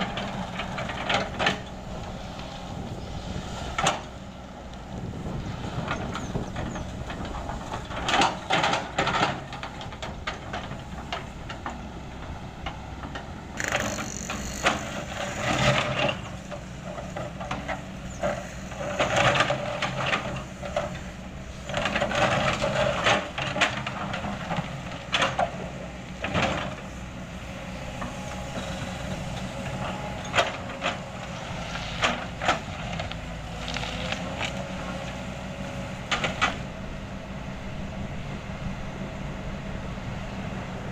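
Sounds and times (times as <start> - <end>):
diesel engine running: 0.0 - 40.9
asphalt scraping and crunching: 26.4 - 35.4.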